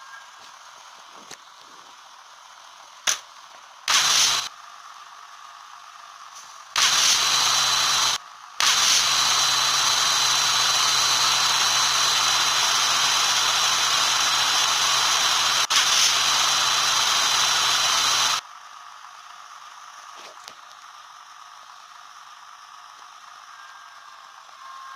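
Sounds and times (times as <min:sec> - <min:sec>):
small electric motor running: 0:03.8 - 0:04.6, 0:06.7 - 0:18.4.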